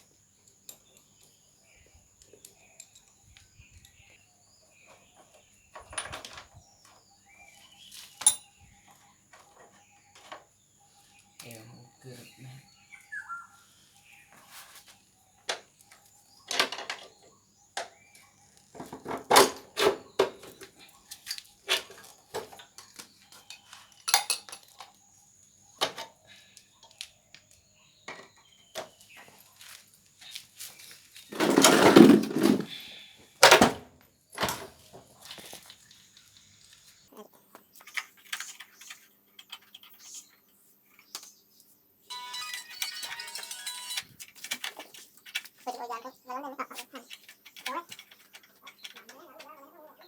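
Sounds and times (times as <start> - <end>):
metal tools clinking: 8.2 - 8.5, 23.5 - 24.7
rattling metal clatter: 31.3 - 32.7.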